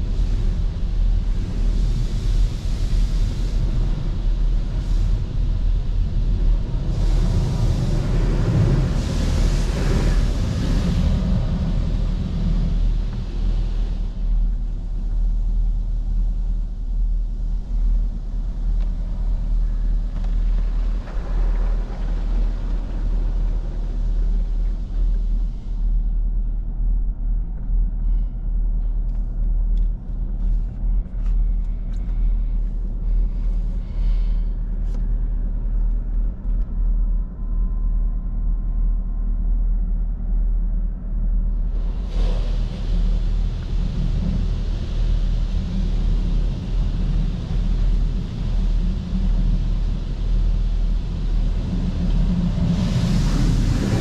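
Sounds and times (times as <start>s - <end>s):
car wash spray hissing: 41.7s - 54.0s.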